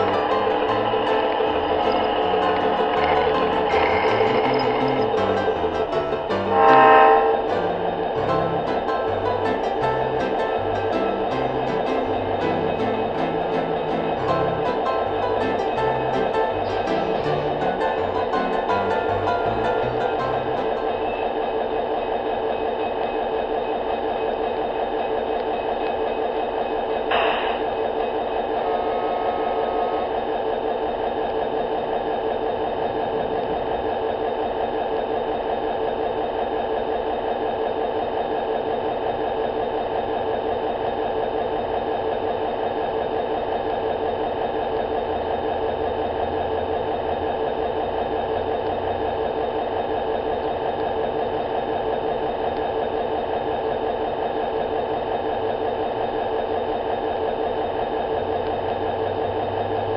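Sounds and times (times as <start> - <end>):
model train motor whirring: 0.0 - 7.4.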